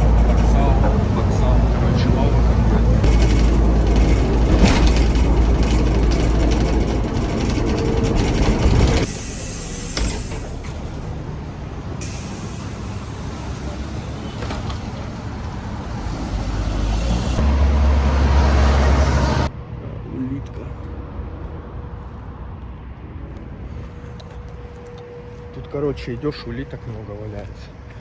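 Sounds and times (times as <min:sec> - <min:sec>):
heavy vehicle engine rumbling: 0:00.0 - 0:22.1
traffic noise: 0:00.0 - 0:28.0
air brake hiss: 0:09.1 - 0:10.7, 0:12.0 - 0:14.7.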